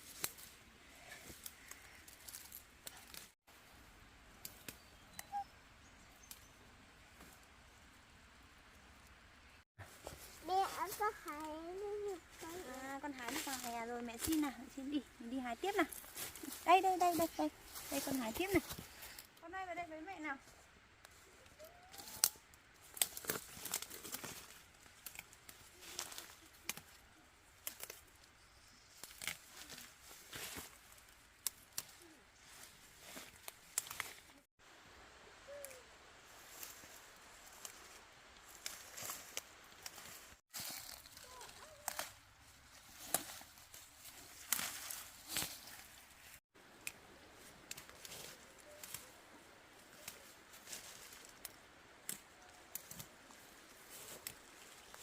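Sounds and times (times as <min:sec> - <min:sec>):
leaves rustling: 0:00.0 - 0:55.0
plant stems snapping: 0:21.9 - 0:27.0, 0:27.6 - 0:28.2, 0:28.9 - 0:32.1, 0:33.1 - 0:34.4, 0:37.5 - 0:45.8, 0:47.6 - 0:49.2, 0:49.9 - 0:53.4.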